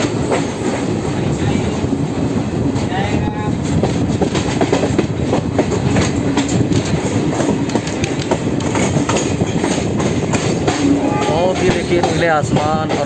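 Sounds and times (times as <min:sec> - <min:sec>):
train wheels rumbling: 0:00.0 - 0:13.0
sharp clicks and knocks from rails: 0:03.8 - 0:10.9.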